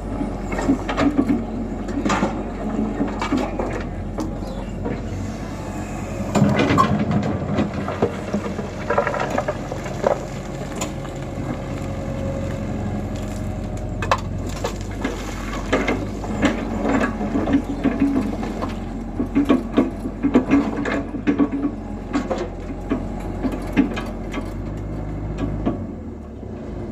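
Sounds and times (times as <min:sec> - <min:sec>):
excavator diesel engine running: 0:00.0 - 0:26.9
bucket crunching and clattering: 0:06.3 - 0:24.6.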